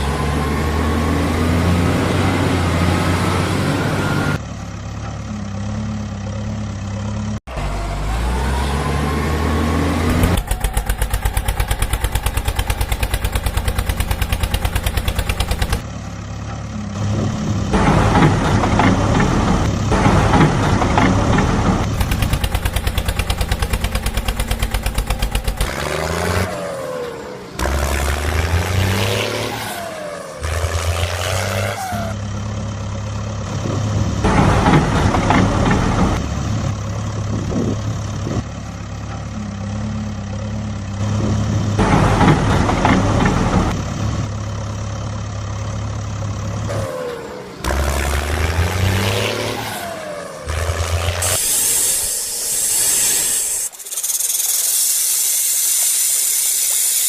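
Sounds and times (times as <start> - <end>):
heavy vehicle engines revving: 0.0 - 57.0
fast even clatter: 19.9 - 26.0.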